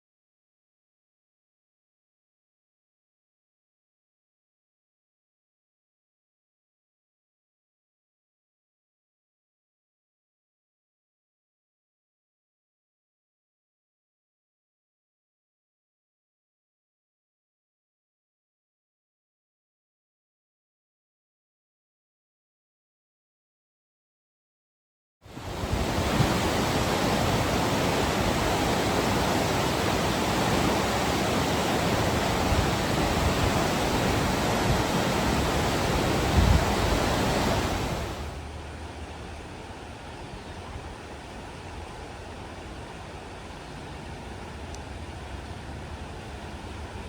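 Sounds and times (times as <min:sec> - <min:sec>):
steady rushing noise: 0:25.3 - 0:47.0.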